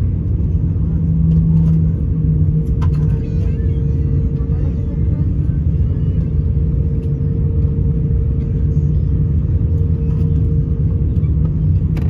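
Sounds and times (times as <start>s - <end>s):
aircraft cabin engine rumble: 0.0s - 12.0s
constant droning hum: 0.0s - 12.0s.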